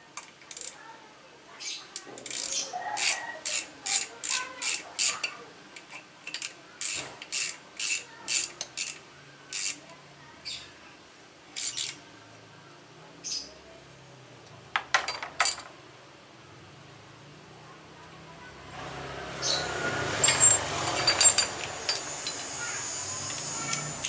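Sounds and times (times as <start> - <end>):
ratchet wrench clicking: 0.5 - 0.8, 2.2 - 9.8, 11.6 - 12.0, 20.2 - 24.0.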